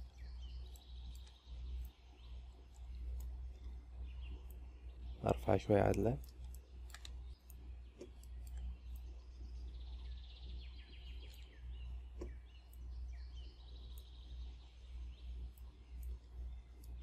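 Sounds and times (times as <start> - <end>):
computer mouse clicks: 0.0 - 2.0, 5.8 - 9.1, 11.2 - 11.6, 13.9 - 14.2, 15.5 - 16.2, 16.8 - 17.0
birds chirping in trills: 0.0 - 17.0
steady low hum: 0.0 - 17.0.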